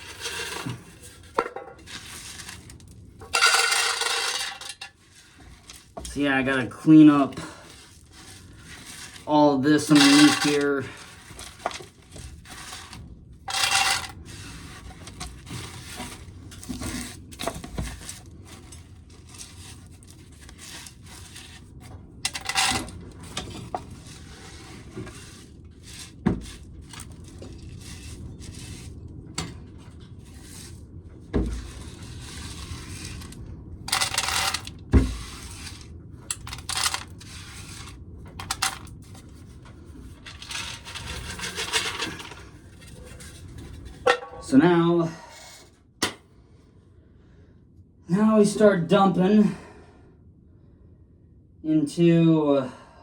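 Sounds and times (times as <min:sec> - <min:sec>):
kernels pouring and rattling: 0:00.0 - 0:21.6, 0:22.3 - 0:28.9, 0:33.9 - 0:39.2, 0:40.2 - 0:43.2
corn kernels scraped together: 0:00.0 - 0:29.0, 0:29.8 - 0:30.8, 0:31.5 - 0:44.6.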